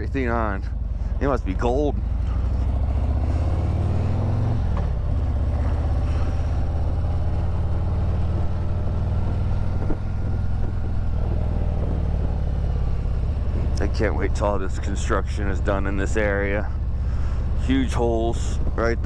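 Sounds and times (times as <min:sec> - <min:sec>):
motorcycle engine running: 0:00.0 - 0:19.0
wind noise: 0:08.0 - 0:12.4.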